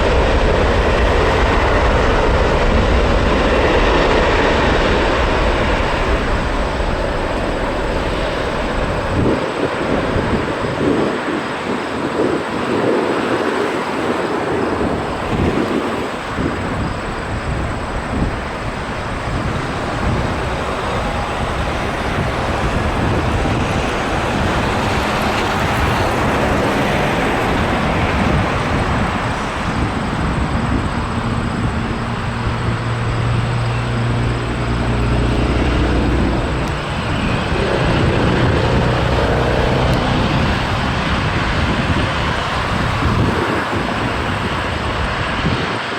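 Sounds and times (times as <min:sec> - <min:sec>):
jet engines roaring: 0:00.0 - 0:45.9
low droning tones: 0:30.8 - 0:44.2.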